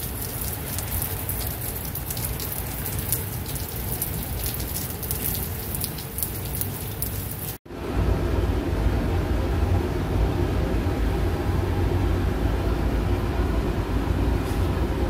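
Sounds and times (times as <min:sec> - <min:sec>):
rain hissing with drop ticks: 0:00.0 - 0:07.6.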